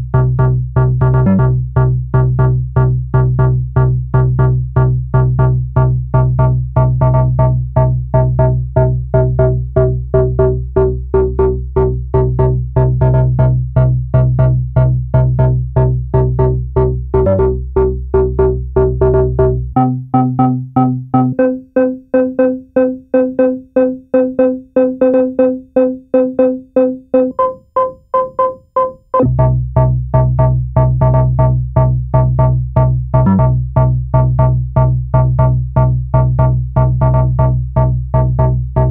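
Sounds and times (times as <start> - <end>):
synthesizer sequenced bassline: 0.0 - 38.9.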